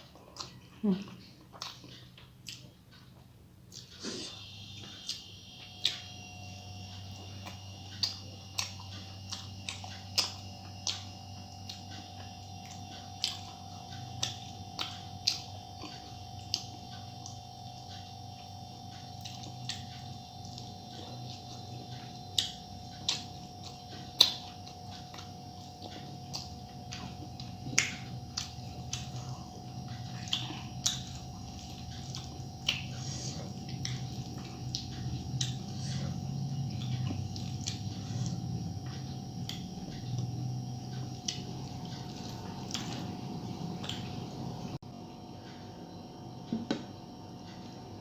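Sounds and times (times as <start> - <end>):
wet chewing sounds: 0.0 - 6.2, 6.8 - 44.8
steady low hum: 0.0 - 48.0.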